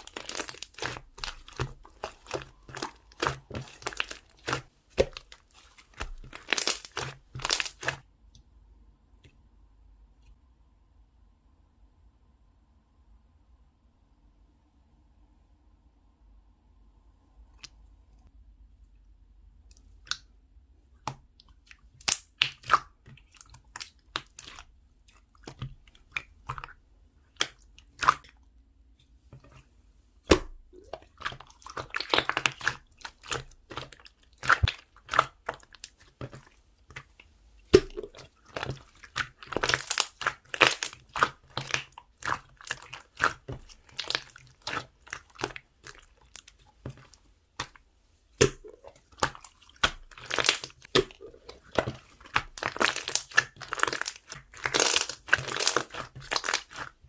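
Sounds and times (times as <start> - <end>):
slime squished by hand: 0.0 - 8.0, 21.0 - 28.4, 30.2 - 57.0
wet clicks and crackling pops: 21.0 - 28.4, 48.4 - 57.0.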